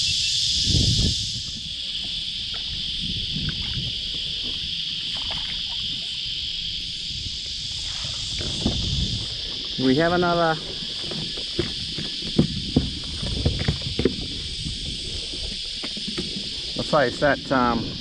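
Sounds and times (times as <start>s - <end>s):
insect chorus drone: 0.0s - 18.0s
low thumps and rustles: 7.3s - 16.8s.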